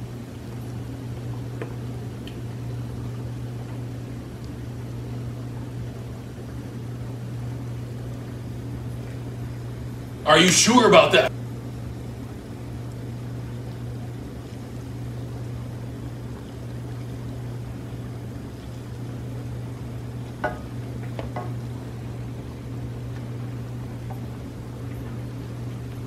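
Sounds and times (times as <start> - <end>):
eggs frying in oil: 0.0 - 10.2, 11.3 - 26.0
steady low hum: 0.0 - 26.0.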